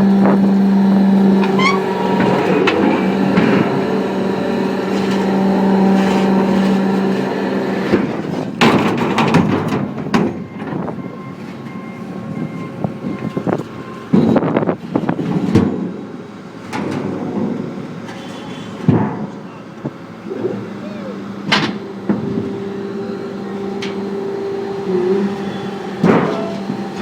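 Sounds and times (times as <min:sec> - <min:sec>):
hydraulic baler humming: 0:00.0 - 0:27.0
sheet steel crunching: 0:00.3 - 0:10.4, 0:25.0 - 0:27.0
metal clanks: 0:26.0 - 0:27.0.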